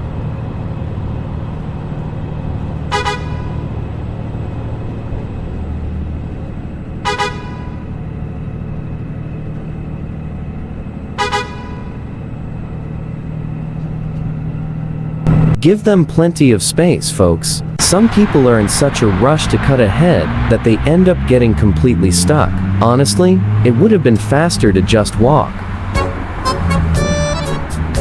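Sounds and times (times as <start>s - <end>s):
traffic road and engine noise: 0.0s - 28.0s
vehicle horn double honks: 2.9s - 3.7s, 7.0s - 7.9s, 11.2s - 12.0s.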